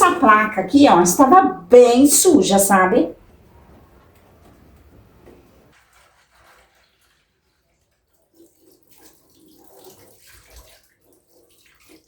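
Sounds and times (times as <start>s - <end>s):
water being handled: 4.0s - 12.0s.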